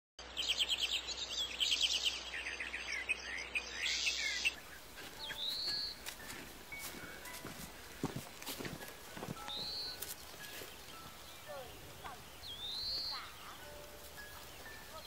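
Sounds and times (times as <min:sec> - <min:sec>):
songbirds trilling: 0:00.2 - 0:15.0
rising whistled bird call: 0:00.4 - 0:04.6, 0:12.4 - 0:13.4.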